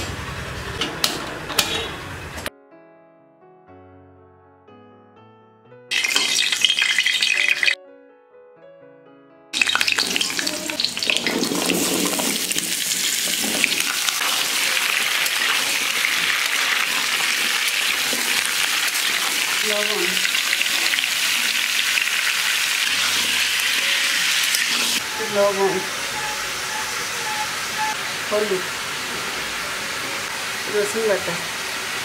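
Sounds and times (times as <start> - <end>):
food sizzling in hot oil: 5.9 - 7.8, 9.6 - 32.0.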